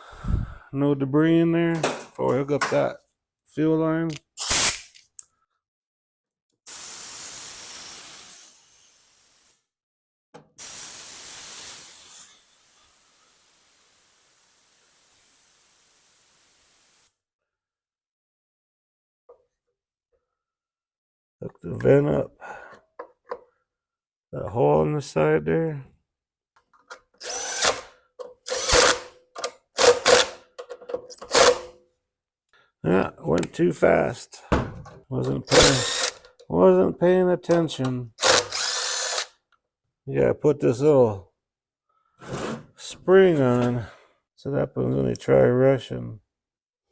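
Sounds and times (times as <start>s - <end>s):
compressed air blow gun hissing: 6.7s - 9.5s, 10.6s - 16.9s, 35.5s - 36.2s.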